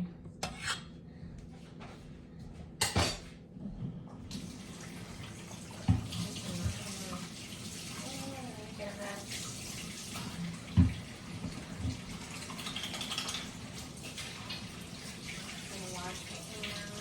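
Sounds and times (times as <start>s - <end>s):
water running into sink: 4.2s - 17.0s.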